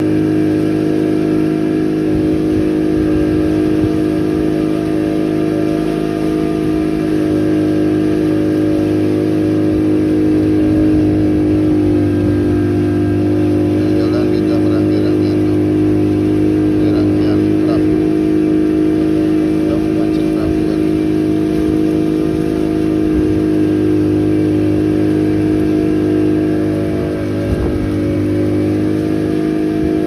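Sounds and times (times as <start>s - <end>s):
engine droning hum: 0.0s - 30.0s.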